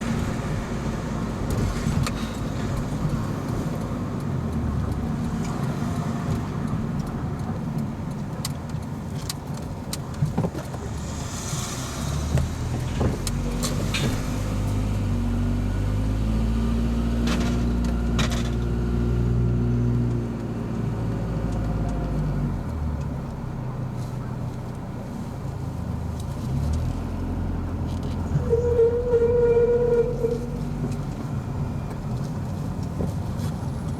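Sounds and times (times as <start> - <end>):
car running rumble: 0.0 - 33.9
high rubbing squeal: 28.3 - 30.8.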